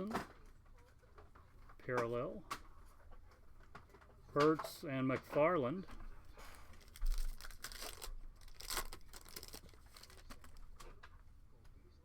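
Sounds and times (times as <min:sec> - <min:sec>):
foil wrapper crinkling: 0:06.5 - 0:10.8
wrapper ripping: 0:06.8 - 0:10.6.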